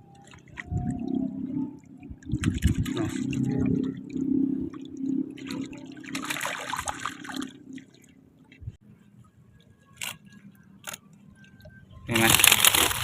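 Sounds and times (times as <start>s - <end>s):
water splashing and running: 2.2s - 8.6s, 12.1s - 13.0s.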